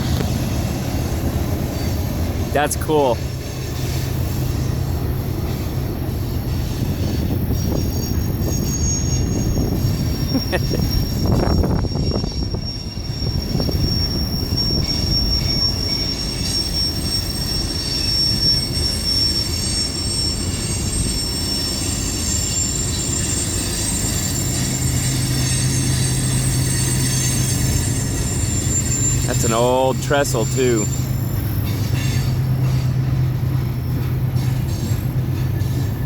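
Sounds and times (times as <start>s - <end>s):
train rumbling on rails: 0.0s - 36.0s
high-pitched wheel squeal: 5.4s - 33.2s.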